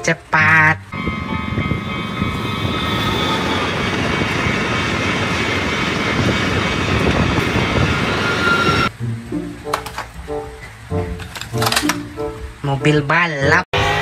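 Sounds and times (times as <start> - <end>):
music: 0.0 - 2.7, 8.9 - 14.0
train wheels rushing on rails: 0.9 - 8.9.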